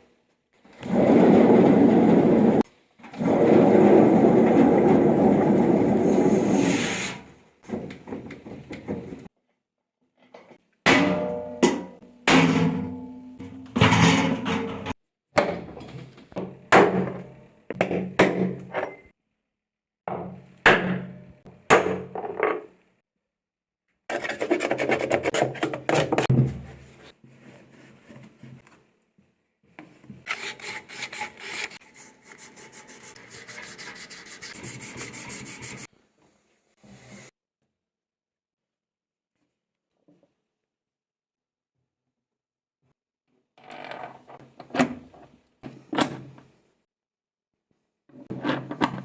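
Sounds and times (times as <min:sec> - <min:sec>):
scraping and rubbing: 0:30.2 - 0:35.9.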